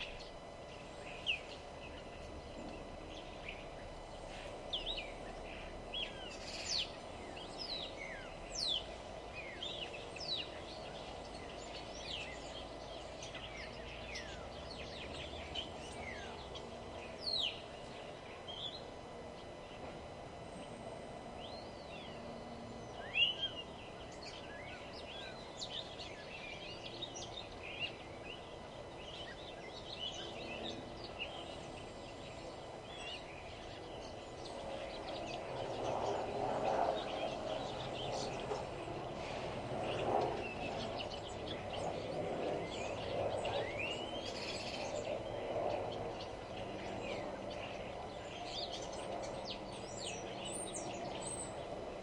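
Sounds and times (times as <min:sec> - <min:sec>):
small birds chirping and trilling: 0:00.0 - 0:52.0
steady background hum: 0:00.0 - 0:52.0.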